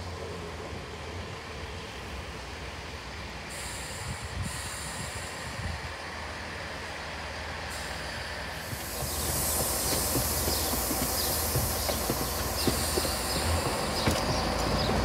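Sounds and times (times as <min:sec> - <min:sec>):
diesel engine hum: 0:08.4 - 0:15.0
wheel rumble on rails: 0:08.6 - 0:15.0
brake squeal: 0:08.8 - 0:15.0.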